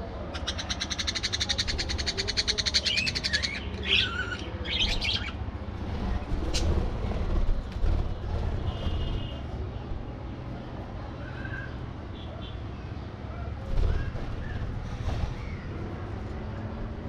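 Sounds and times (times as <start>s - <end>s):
budgerigars chattering: 0.3s - 5.4s.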